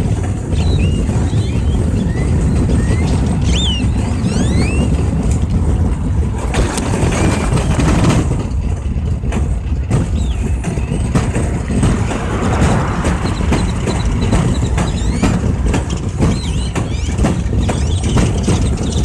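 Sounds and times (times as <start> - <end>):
road traffic rumble: 0.0 - 19.0
birds calling: 0.5 - 5.4.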